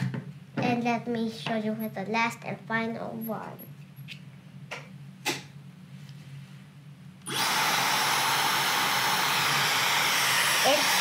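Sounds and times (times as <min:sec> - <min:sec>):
hair dryer blowing air: 0:07.3 - 0:11.0.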